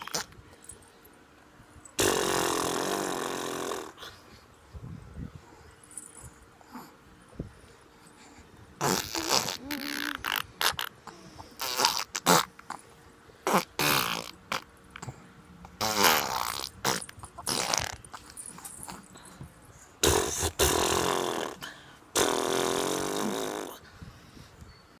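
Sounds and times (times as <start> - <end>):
baby blowing raspberries: 2.0 - 4.2, 8.8 - 12.8, 13.4 - 15.1, 15.8 - 18.1, 20.0 - 23.8.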